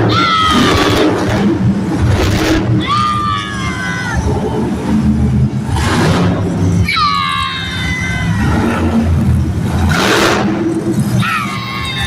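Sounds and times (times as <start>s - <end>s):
monster truck engine running: 0.0s - 12.0s
high wailing tone: 6.6s - 9.0s.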